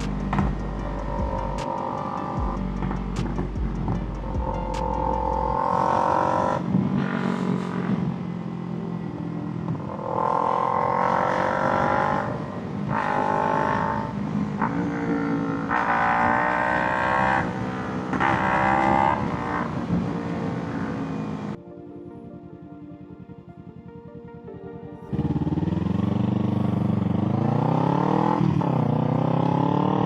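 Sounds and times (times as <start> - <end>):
motorcycle engine accelerating: 0.0 - 21.6, 25.1 - 30.0.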